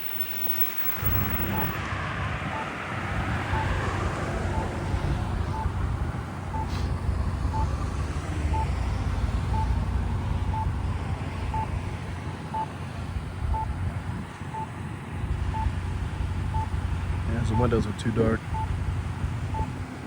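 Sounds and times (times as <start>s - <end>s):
short electronic beeps: 0.0s - 1.8s, 2.5s - 7.8s, 8.5s - 8.8s, 9.5s - 9.8s, 11.5s - 11.8s, 16.5s - 16.7s, 17.3s - 18.8s, 19.5s - 19.7s
road traffic: 0.0s - 20.0s
wind: 0.0s - 20.0s.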